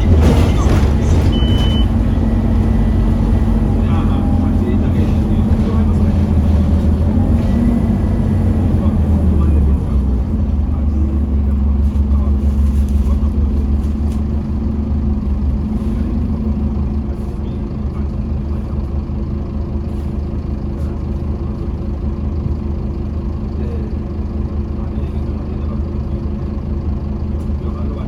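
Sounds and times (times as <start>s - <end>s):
bus diesel engine running: 0.0s - 28.0s.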